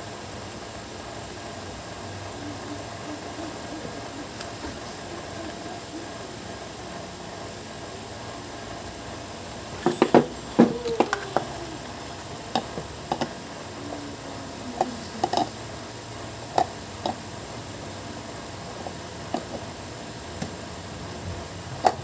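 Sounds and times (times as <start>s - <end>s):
hard objects clicking and knocking: 9.8s - 11.6s, 12.5s - 13.4s, 15.2s - 15.5s, 19.3s - 19.6s.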